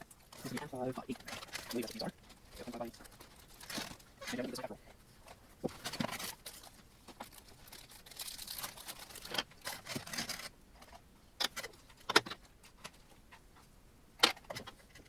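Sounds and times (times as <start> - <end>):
hardware rustling: 0.0 - 15.0.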